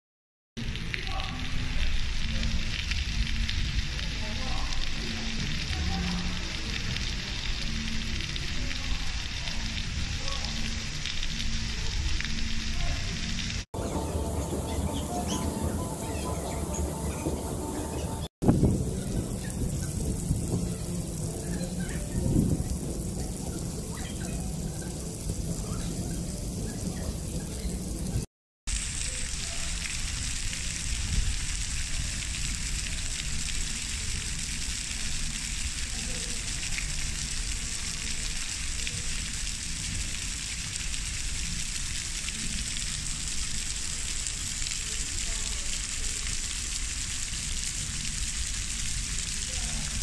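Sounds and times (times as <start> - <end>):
heavy rain pouring: 0.6 - 50.0
low rumbling noise: 13.1 - 28.3.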